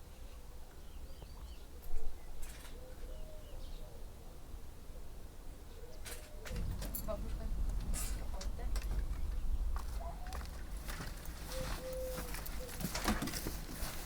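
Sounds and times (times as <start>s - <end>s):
small birds chirping faintly: 0.0s - 14.0s
bump: 6.5s - 11.3s
low steady rumble: 6.5s - 12.6s
short rustles: 6.5s - 14.0s.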